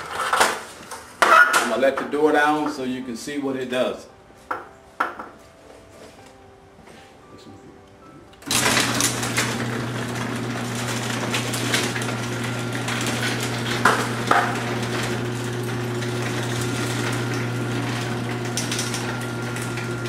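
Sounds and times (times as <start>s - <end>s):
garage door motor hum: 8.4s - 20.0s
garage door rollers rattling: 8.4s - 20.0s.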